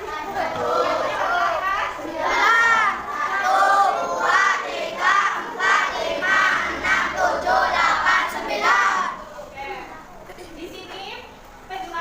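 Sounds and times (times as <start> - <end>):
children chanting in unison: 0.0 - 9.6.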